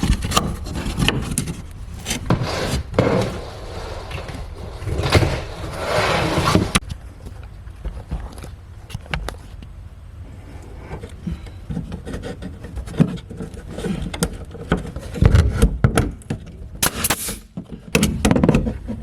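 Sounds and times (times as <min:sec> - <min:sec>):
wood scraping and rubbing: 0:00.0 - 0:06.9, 0:10.7 - 0:15.7.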